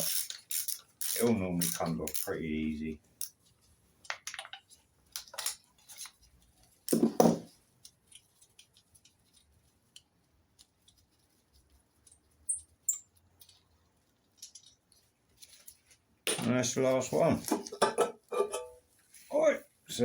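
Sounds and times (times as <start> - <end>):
metal tools clinking: 17.5 - 18.8.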